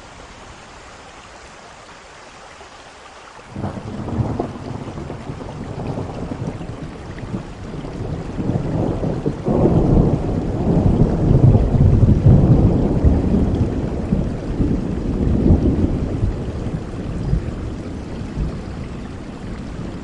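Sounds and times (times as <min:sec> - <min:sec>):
steady rain: 0:00.0 - 0:20.0
thunder rumbling: 0:03.5 - 0:20.0.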